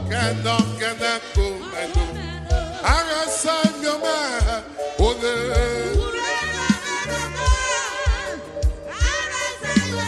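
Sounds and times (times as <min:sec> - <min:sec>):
low bass line: 0:00.0 - 0:03.0, 0:05.0 - 0:07.5
band playing: 0:00.0 - 0:10.0
gospel singing voices: 0:00.0 - 0:10.0.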